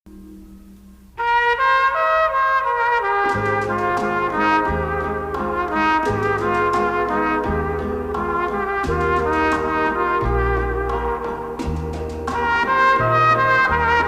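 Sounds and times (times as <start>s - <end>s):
background music with melody and beat: 3.3s - 14.0s.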